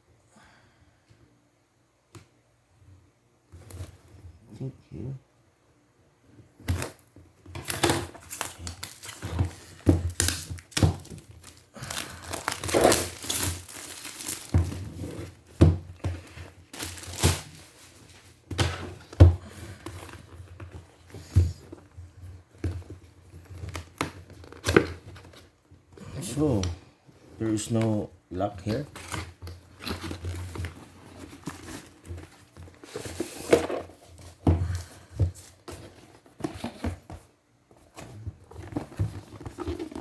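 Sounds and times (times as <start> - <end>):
packaging crinkling and tearing: 7.6 - 15.4, 16.6 - 18.0
box knocks and thuds: 12.5 - 16.2.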